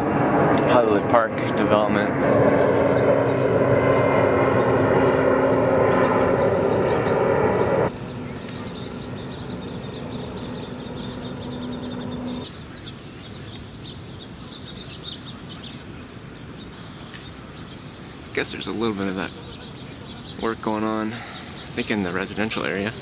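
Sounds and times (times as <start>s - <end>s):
loud engine drone: 0.0s - 12.5s
small birds chirping: 0.0s - 23.0s.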